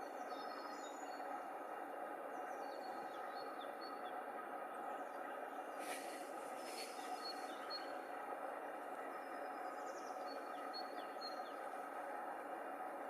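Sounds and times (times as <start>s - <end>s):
steady rushing background noise: 5.4s - 9.0s.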